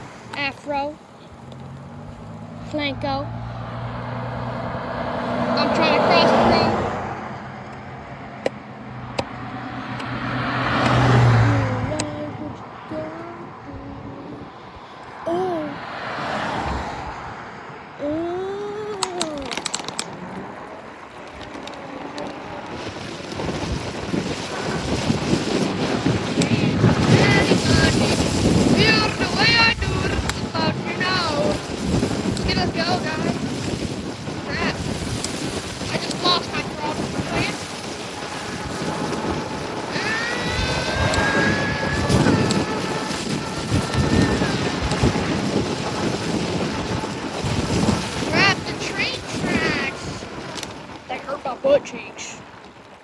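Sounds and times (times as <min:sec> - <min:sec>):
electric bike motor whining: 0:00.0 - 0:03.7, 0:18.8 - 0:51.0
tyres rumbling: 0:00.0 - 0:53.0
wind buffeting microphone: 0:00.0 - 0:53.0
sharp clicks: 0:18.9 - 0:22.4.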